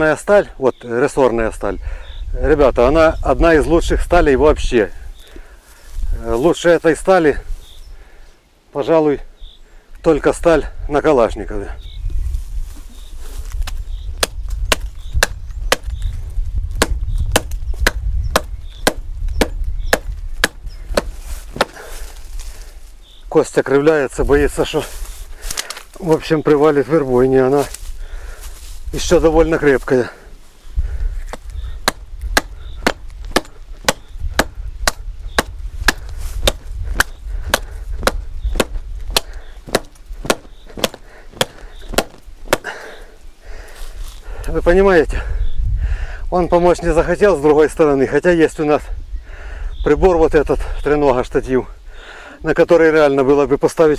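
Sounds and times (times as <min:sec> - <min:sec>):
axe chopping into tree trunk: 0:13.6 - 0:16.0, 0:16.7 - 0:22.0, 0:31.3 - 0:42.8.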